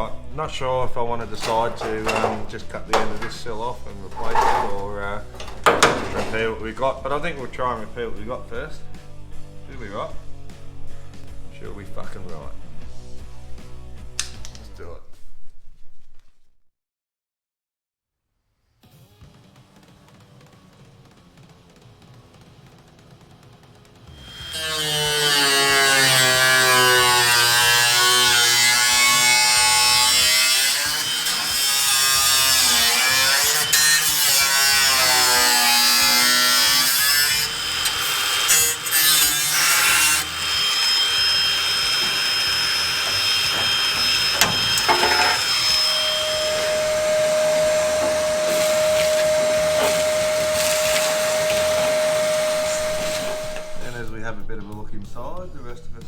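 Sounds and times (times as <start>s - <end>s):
electric grinder on sheet metal: 1.2s - 6.6s, 24.1s - 54.1s.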